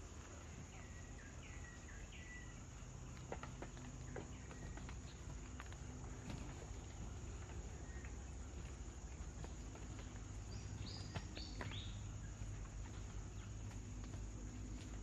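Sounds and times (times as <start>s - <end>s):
bird chirping: 7.2s - 14.0s.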